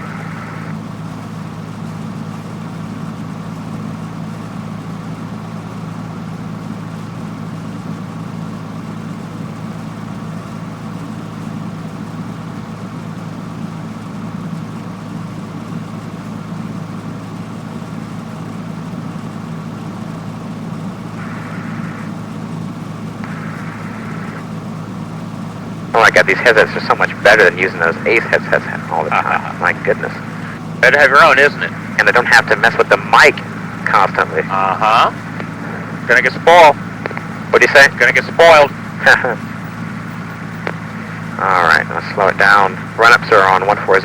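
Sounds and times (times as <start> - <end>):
airplane engine and propeller drone: 0.0 - 44.0.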